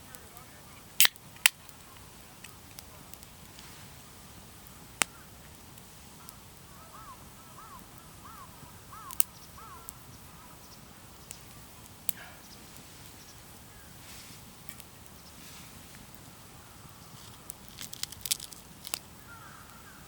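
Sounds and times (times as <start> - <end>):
wood fire popping: 0.0 - 20.0
bird calling: 6.2 - 14.4, 16.4 - 20.0.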